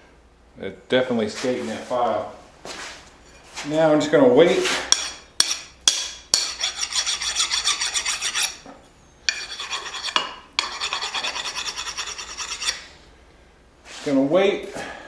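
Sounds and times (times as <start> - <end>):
file rasping on steel: 4.9 - 8.6, 9.3 - 12.9.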